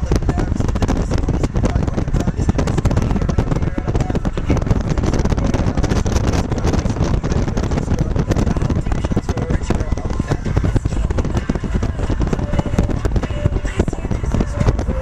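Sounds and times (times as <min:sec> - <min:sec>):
moving vehicle rumble: 0:00.0 - 0:15.0
wind buffeting microphone: 0:00.0 - 0:15.0.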